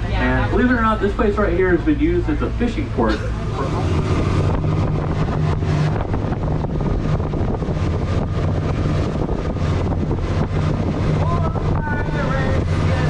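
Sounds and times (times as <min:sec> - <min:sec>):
boat engine humming: 0:00.0 - 0:13.0
wind noise on microphone: 0:03.3 - 0:13.0.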